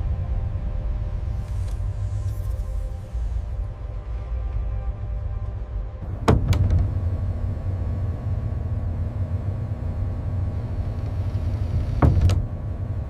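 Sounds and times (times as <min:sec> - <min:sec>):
heavy machinery rumbling: 0:06.0 - 0:13.0.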